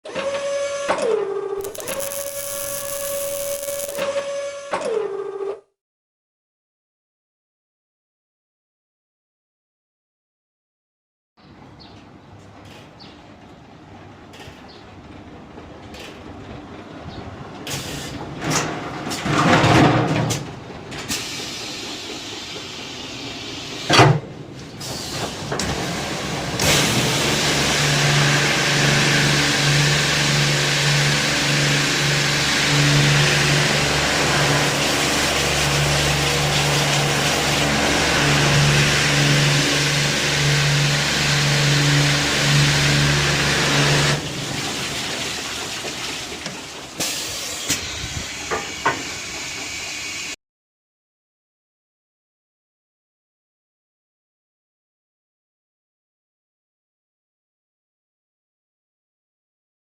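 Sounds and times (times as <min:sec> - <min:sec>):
machine hum: 0:01.6 - 0:04.0.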